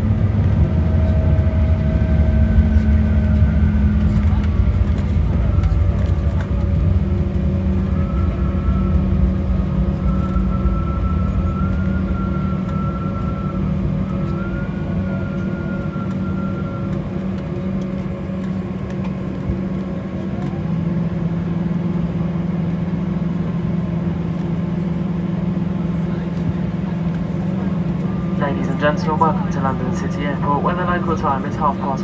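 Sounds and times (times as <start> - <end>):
aircraft engine drone: 0.0 - 32.0
high wavering whine: 0.5 - 17.2.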